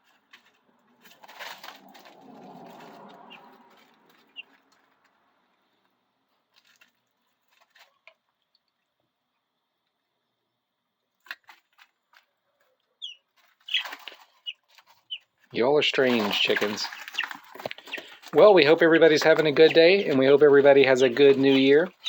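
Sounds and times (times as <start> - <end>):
rustle: 0.0 - 5.2
chicks peeping: 0.0 - 5.8, 12.2 - 22.0.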